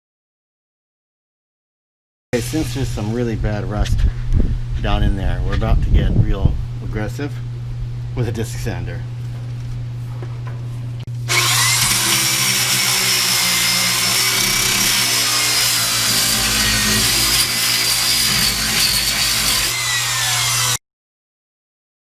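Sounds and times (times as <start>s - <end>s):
disc sander grinding metal: 11.1s - 20.8s.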